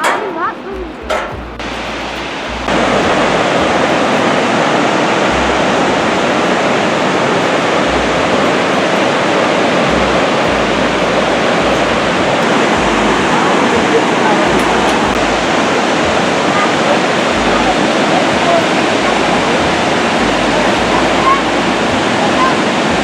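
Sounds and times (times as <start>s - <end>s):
waterfall roaring: 0.0s - 23.0s.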